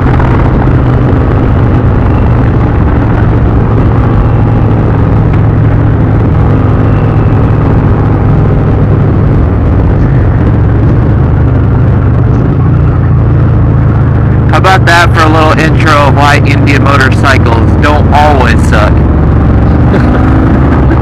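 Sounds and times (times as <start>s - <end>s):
motorcycle engine running: 0.0s - 21.0s
wind rushing: 0.0s - 21.0s.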